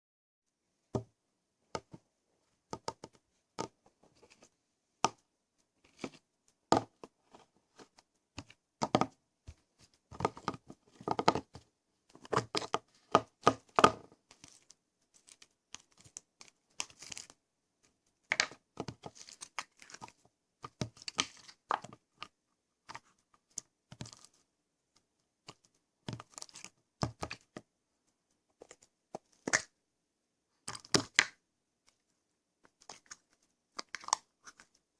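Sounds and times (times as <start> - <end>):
hands handling crinkly materials: 14.2 - 27.6.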